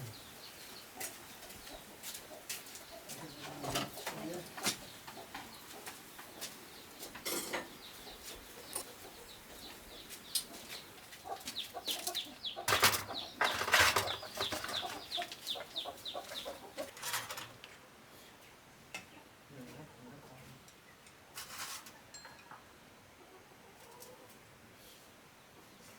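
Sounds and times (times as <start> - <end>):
chickens chirping: 0.0 - 17.6.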